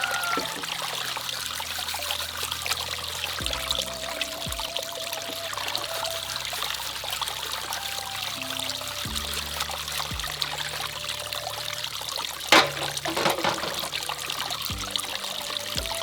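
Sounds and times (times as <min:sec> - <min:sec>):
water trickling and pouring: 0:00.0 - 0:16.0.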